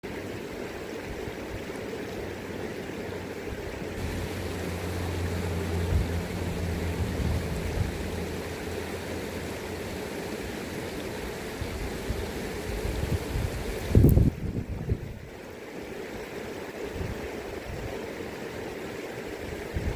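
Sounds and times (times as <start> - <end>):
river water rushing: 0.0 - 19.9
low rumble: 4.0 - 13.0.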